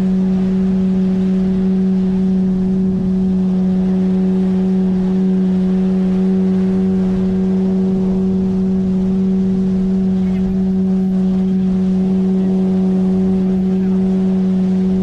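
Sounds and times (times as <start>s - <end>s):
outboard motor droning: 0.0s - 15.0s.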